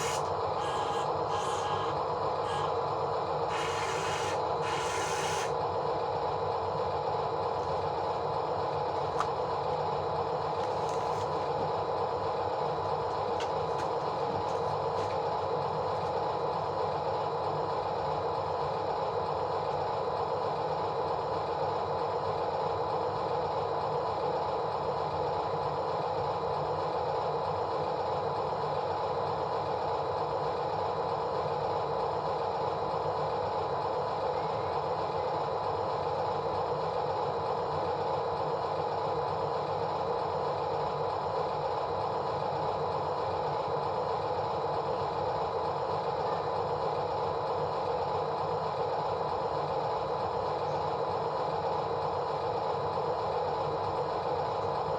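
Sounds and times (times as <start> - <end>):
motor whirring: 0.0 - 2.8, 3.5 - 5.6.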